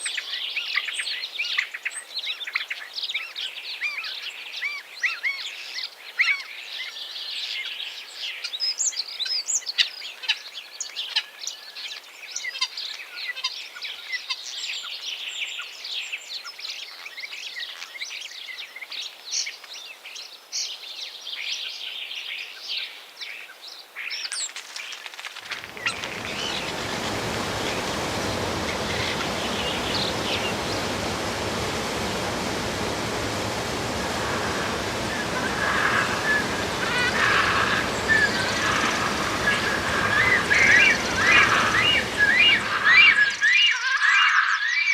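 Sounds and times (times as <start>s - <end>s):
steady rushing noise: 25.4s - 43.4s
small birds chirping: 25.5s - 43.5s.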